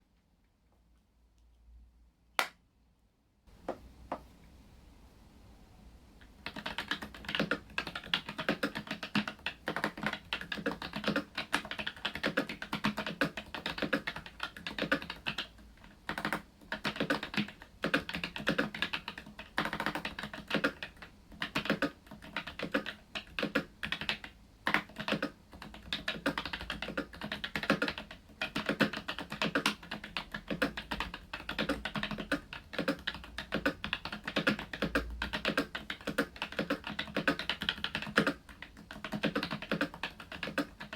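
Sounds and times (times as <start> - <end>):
mechanical keyboard typing: 6.4 - 40.9.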